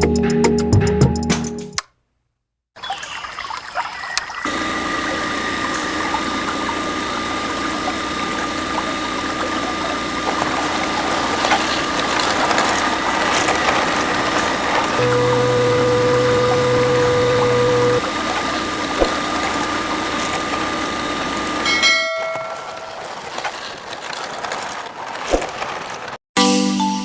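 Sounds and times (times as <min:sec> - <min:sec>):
small electric motor whining: 0:04.5 - 0:21.7
low hum: 0:04.5 - 0:24.2.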